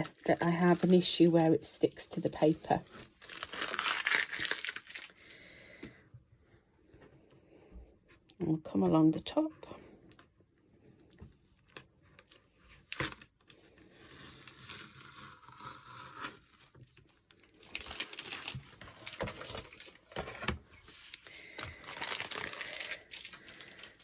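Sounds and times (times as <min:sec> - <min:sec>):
tape peeling off paper: 0:14.0 - 0:16.6.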